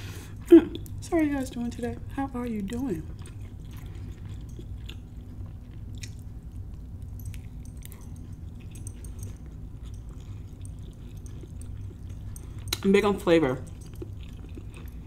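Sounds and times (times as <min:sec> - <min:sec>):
steady low hum: 0:00.0 - 0:15.0
person chewing: 0:02.6 - 0:12.9, 0:13.6 - 0:15.0.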